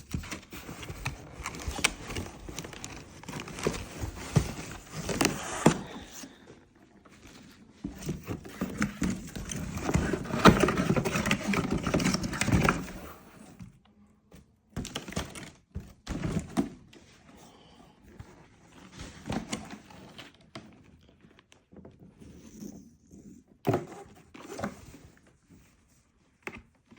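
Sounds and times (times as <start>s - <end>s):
packaging rustling: 0.0s - 6.4s.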